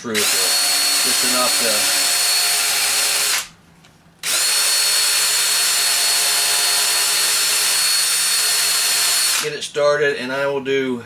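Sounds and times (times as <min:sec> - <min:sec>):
power drill whining: 0:00.2 - 0:03.5, 0:04.2 - 0:09.5.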